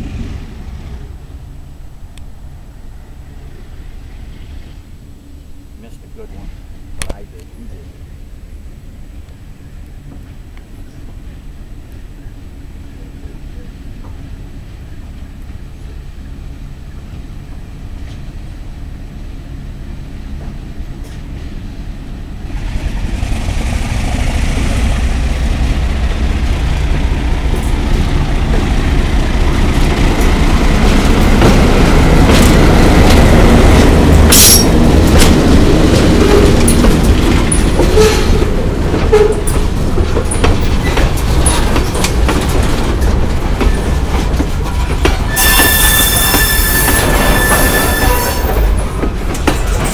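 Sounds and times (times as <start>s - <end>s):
diesel locomotive engine rumble: 0.0s - 49.9s
train wheels clicking over rail joints: 22.4s - 49.9s
wheel squeal: 45.3s - 48.8s.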